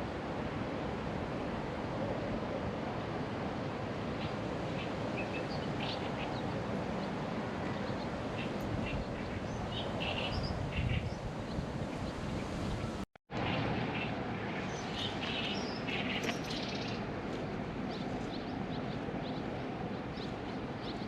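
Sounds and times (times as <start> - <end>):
wind on microphone: 2.5 - 13.0.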